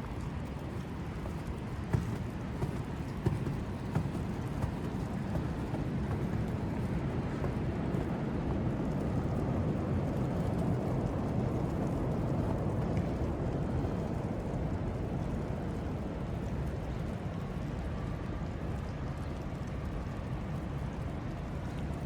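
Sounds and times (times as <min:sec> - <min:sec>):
city traffic rumble: 0:00.0 - 0:22.0
footsteps on snow: 0:01.2 - 0:07.6.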